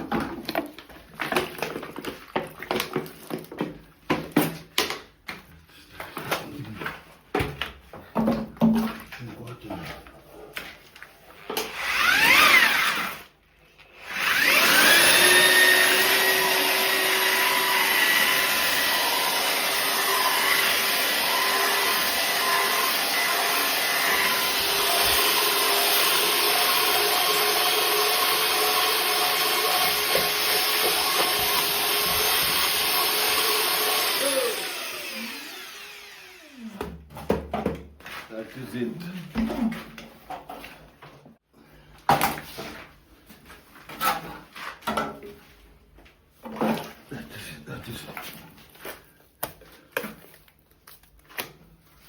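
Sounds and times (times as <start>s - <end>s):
power tool motor whining: 11.6s - 13.2s, 14.0s - 36.8s.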